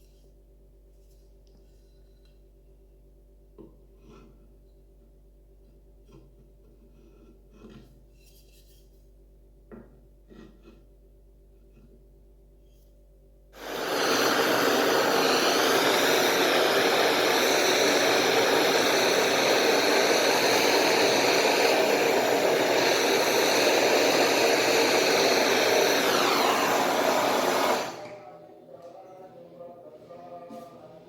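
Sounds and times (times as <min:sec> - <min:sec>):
electric power tool motor running: 0:13.6 - 0:28.2.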